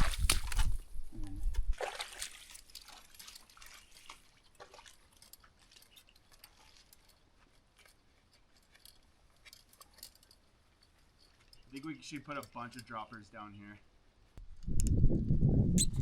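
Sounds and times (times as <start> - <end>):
faint clicks and ticks: 4.2 - 13.6.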